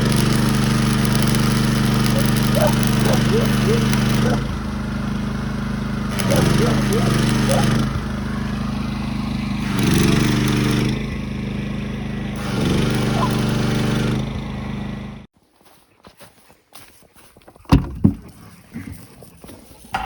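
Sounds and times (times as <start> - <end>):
small engine running: 0.0 - 15.3.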